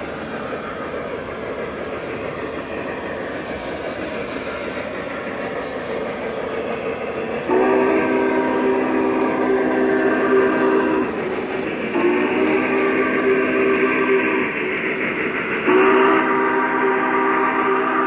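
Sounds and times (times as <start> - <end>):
model train rumbling on track: 0.0 - 18.0
model train horn chord: 7.5 - 14.2, 15.7 - 18.0.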